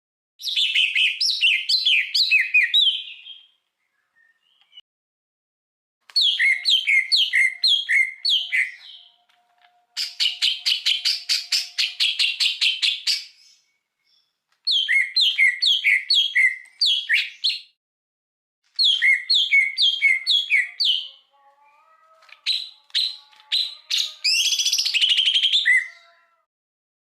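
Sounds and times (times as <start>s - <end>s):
songbird chattering song: 6.2s - 9.4s, 10.0s - 17.7s, 18.8s - 26.2s.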